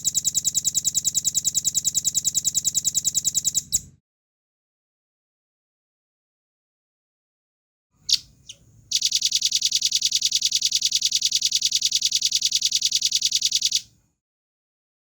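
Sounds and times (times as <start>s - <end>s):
bird call notes: 8.0s - 10.5s
bird trill: 8.0s - 13.8s.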